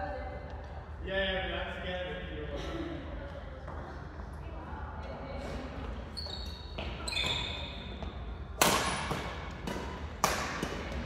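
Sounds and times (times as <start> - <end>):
court shoes squeaking: 5.4 - 11.0
badminton racket hitting shuttlecock: 8.6 - 11.0.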